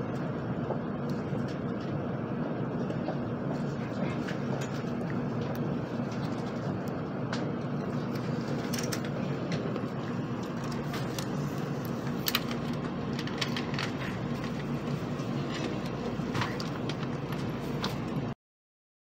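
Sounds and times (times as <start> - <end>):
train running hum and rumble: 0.0 - 18.3
sharp clicks and rattles: 4.2 - 18.1.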